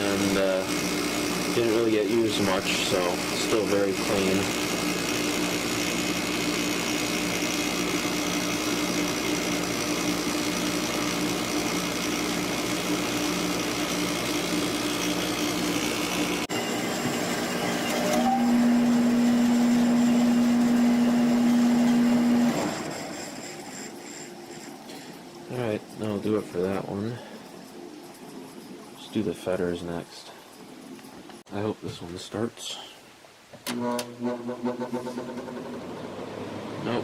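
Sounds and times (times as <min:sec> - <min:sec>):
louder steady hum: 0:00.0 - 0:23.4
air conditioner winding down: 0:00.0 - 0:27.5, 0:33.6 - 0:37.0
air conditioner running: 0:00.0 - 0:30.6.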